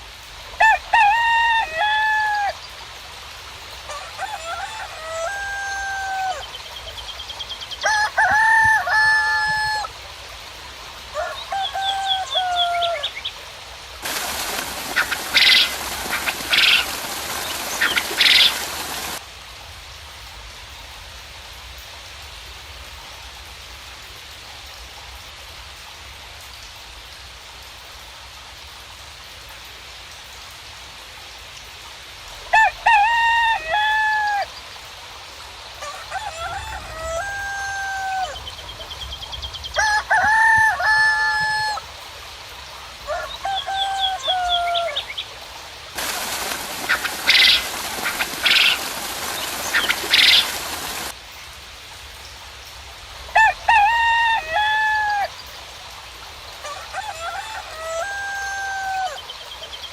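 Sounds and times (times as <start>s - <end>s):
light rain hissing: 0.0s - 59.9s
roosters crowing: 0.6s - 2.6s, 3.9s - 6.6s, 7.8s - 10.0s, 11.1s - 13.2s, 14.0s - 19.2s, 32.5s - 34.5s, 35.8s - 38.6s, 39.7s - 41.9s, 43.0s - 45.1s, 46.0s - 51.2s, 53.3s - 55.4s, 56.6s - 59.3s
loud hiss: 14.0s - 19.2s, 46.0s - 51.2s.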